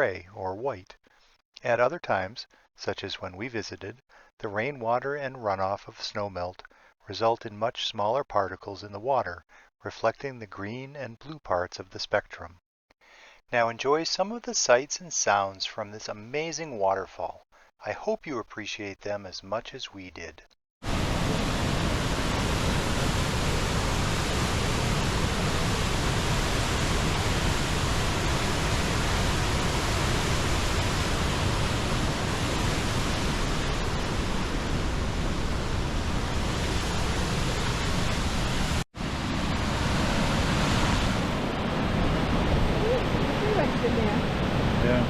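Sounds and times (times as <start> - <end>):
waterfall rushing: 20.9 - 44.0.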